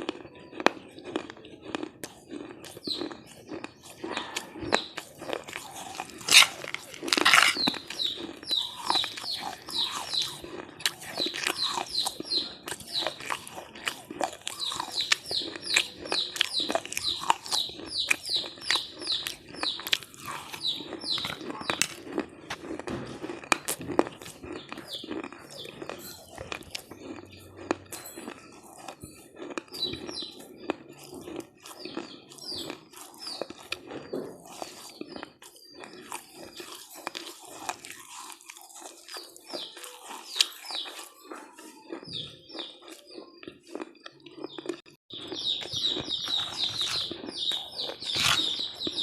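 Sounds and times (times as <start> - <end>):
chewing crunchy snack: 0.0 - 49.0
bird chirping: 2.4 - 22.8, 23.5 - 49.0.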